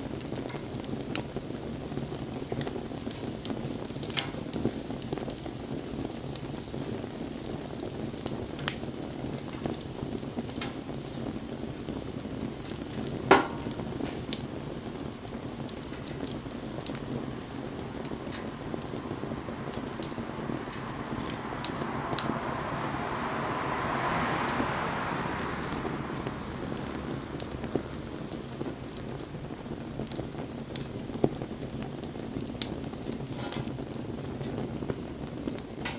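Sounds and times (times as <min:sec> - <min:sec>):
wood fire crackling and popping: 0:00.0 - 0:35.9
hiss: 0:17.1 - 0:28.6.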